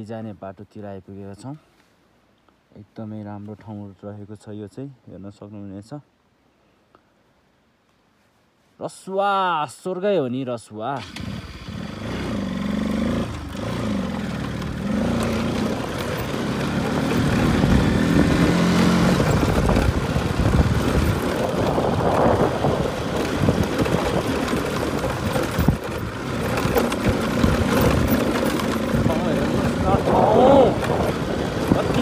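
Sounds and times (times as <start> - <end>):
motorcycle engine running: 11.0 - 32.0.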